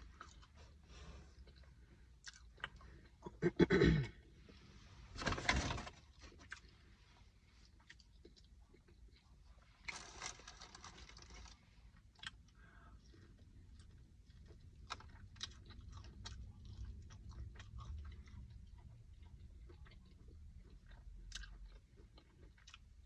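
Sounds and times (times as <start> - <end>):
chewing with wet clicks: 0.0 - 0.6, 1.4 - 3.2, 6.3 - 6.8, 7.6 - 10.5, 11.2 - 23.0.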